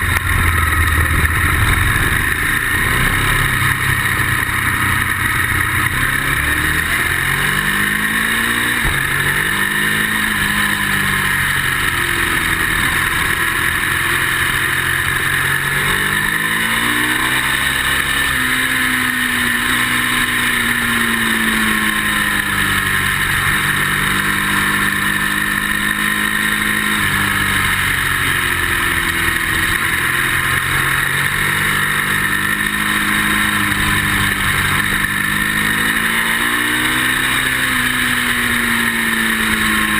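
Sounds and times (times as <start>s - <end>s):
motorcycle engine revving: 0.0s - 39.9s
steady rushing noise: 0.0s - 39.9s.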